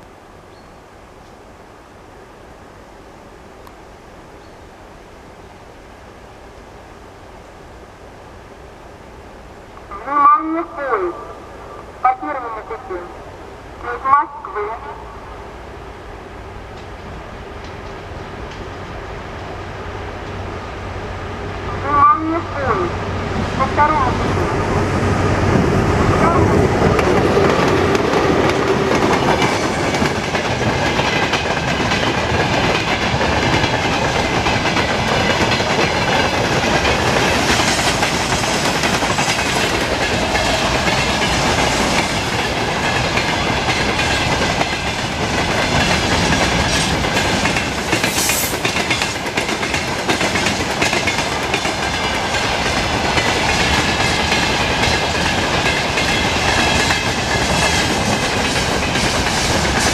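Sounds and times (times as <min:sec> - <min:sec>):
freight train wheels clattering: 0:26.5 - 0:59.9.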